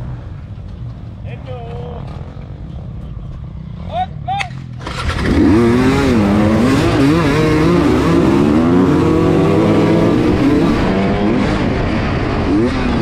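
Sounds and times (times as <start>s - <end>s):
other motorcycle engines running: 0.0s - 13.0s
motorcycle engine accelerating: 1.8s - 13.0s.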